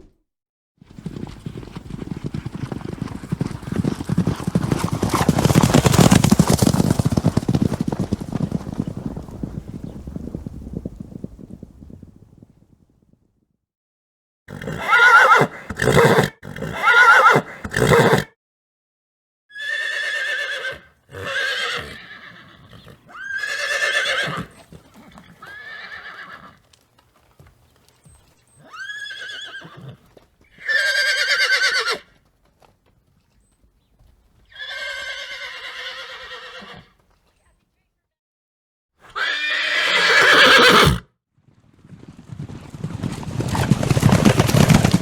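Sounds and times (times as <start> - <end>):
horses neighing and whinnying: 14.5 - 18.3, 19.5 - 26.8, 28.5 - 32.2, 34.4 - 37.0, 39.0 - 41.0.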